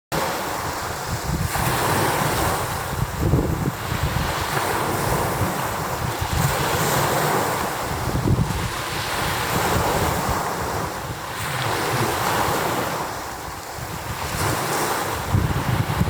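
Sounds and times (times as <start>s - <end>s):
waves pounding on shore: 0.1s - 16.0s
wind buffeting microphone: 0.2s - 16.0s.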